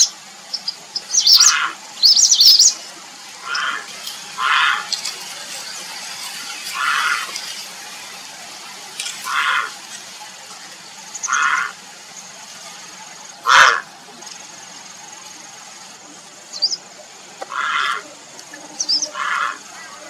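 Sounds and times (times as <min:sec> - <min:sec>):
heron harsh rasping calls: 0:01.0 - 0:02.8, 0:03.4 - 0:04.9, 0:06.7 - 0:07.3, 0:09.2 - 0:09.8, 0:11.2 - 0:11.8, 0:13.4 - 0:13.9, 0:17.5 - 0:18.0, 0:19.0 - 0:19.7.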